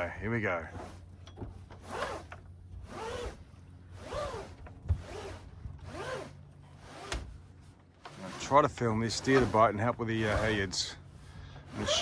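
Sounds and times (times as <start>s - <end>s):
rope zipping through a block: 1.8s - 7.3s, 8.1s - 10.7s, 11.7s - 12.0s.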